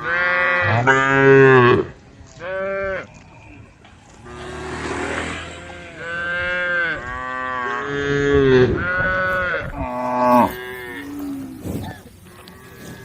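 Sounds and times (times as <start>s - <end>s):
cows mooing: 4.2s - 13.0s.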